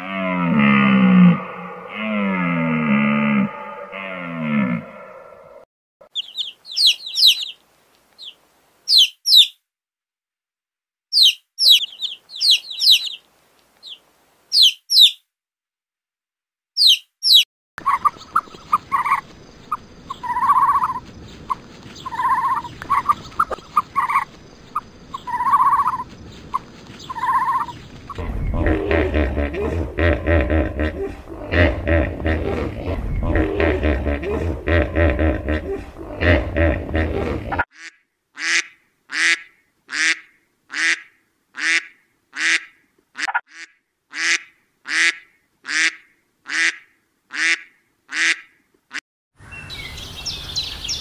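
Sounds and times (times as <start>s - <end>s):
small bird chirping: 6.0s - 9.6s, 11.1s - 15.2s, 16.8s - 28.7s, 49.4s - 51.0s
background hiss: 6.1s - 9.5s, 11.2s - 15.2s, 17.8s - 37.6s
chickens clucking: 17.8s - 37.6s.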